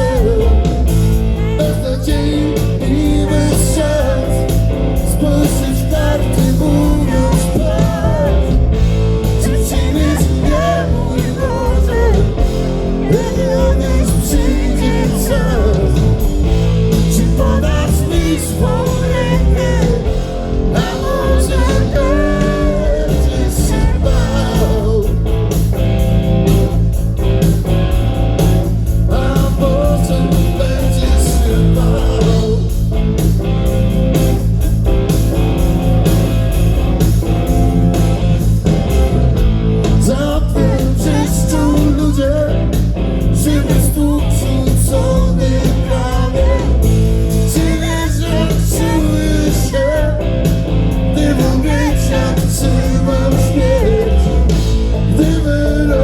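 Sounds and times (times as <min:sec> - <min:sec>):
person singing: 0:00.0 - 0:25.5, 0:29.1 - 0:32.8, 0:39.9 - 0:50.3, 0:51.1 - 0:56.0
blues-rock band playing live: 0:00.0 - 0:56.0.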